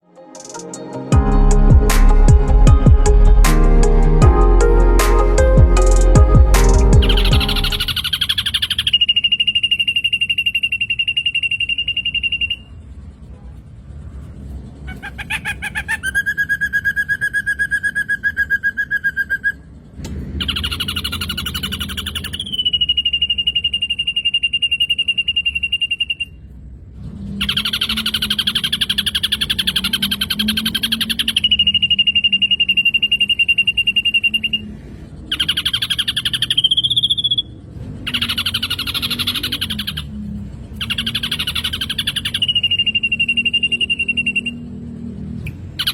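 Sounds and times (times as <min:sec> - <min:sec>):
bird song with whistles: 0:07.0 - 0:12.8, 0:15.9 - 0:19.7, 0:20.4 - 0:26.5, 0:27.4 - 0:40.2, 0:40.8 - 0:44.9, 0:45.5 - 0:45.9.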